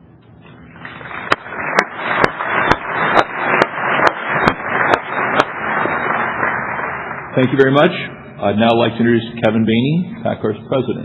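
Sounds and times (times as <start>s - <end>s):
audience applauding: 0.7s - 7.9s.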